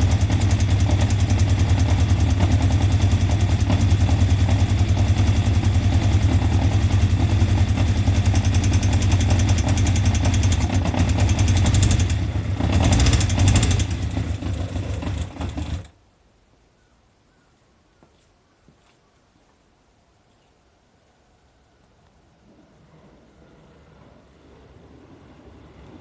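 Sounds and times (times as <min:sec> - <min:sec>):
vehicle engine running rhythmically: 0:00.0 - 0:15.9.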